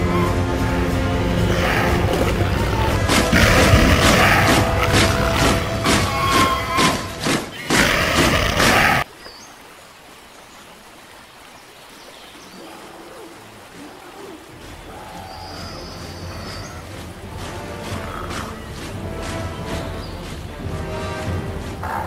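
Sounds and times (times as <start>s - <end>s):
stream running: 0.0s - 22.0s
loud battle sounds: 1.4s - 9.0s
faint bird chirps: 14.1s - 16.9s.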